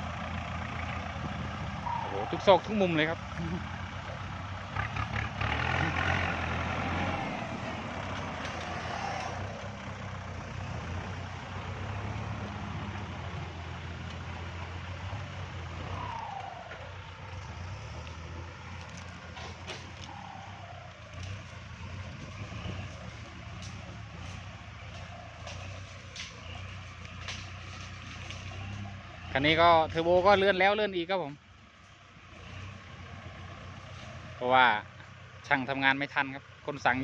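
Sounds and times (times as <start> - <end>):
tractor diesel engine under load: 0.0 - 37.0
plough scraping ground: 16.0 - 20.3, 21.1 - 30.3.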